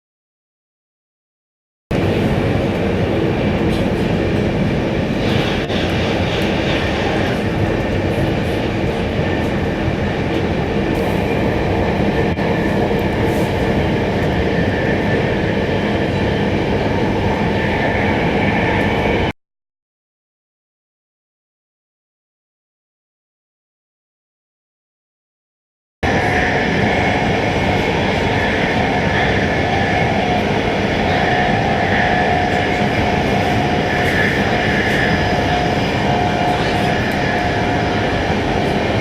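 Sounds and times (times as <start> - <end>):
train wheels rumbling on rail: 1.9 - 19.3, 26.0 - 39.0.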